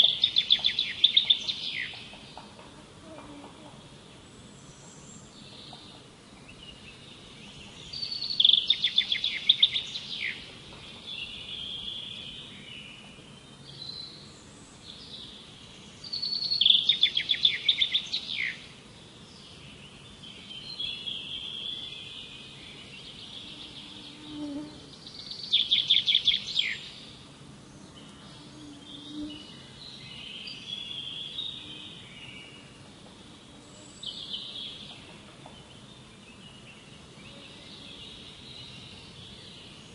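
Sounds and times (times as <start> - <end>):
songbird trilled song: 0.0 - 2.5, 4.6 - 27.2, 27.9 - 32.7, 33.8 - 39.9
soft bird chirps and calls: 0.0 - 32.9.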